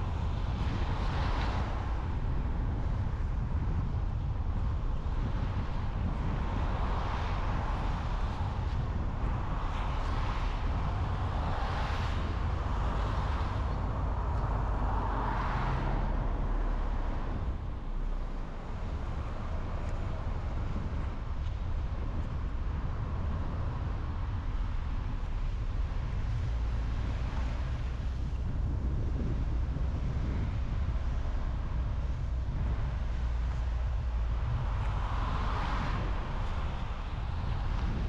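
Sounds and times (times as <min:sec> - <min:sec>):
road and tyre noise: 0:00.0 - 0:38.0
passing vehicle whooshes: 0:06.1 - 0:38.0.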